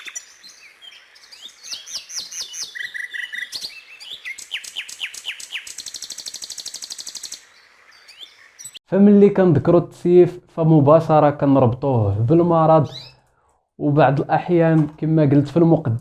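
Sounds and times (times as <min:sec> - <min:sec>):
finch singing: 0:00.0 - 0:08.8, 0:12.7 - 0:13.2.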